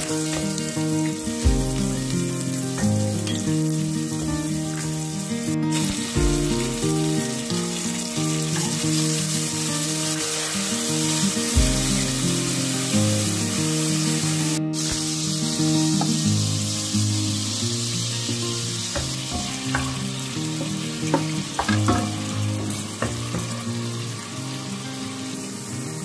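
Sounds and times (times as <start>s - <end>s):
background music melody: 0.0s - 26.0s
food sizzling in oil: 0.0s - 26.0s.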